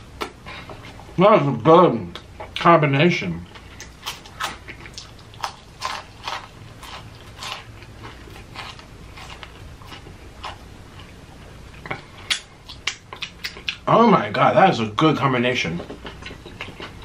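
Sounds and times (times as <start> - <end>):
crunchy chewing of fried chicken: 3.5 - 13.9, 15.8 - 17.0.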